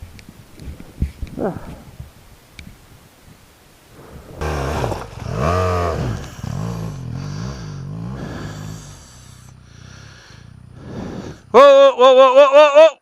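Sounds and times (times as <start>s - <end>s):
motorcycle engine revving: 4.0s - 11.6s.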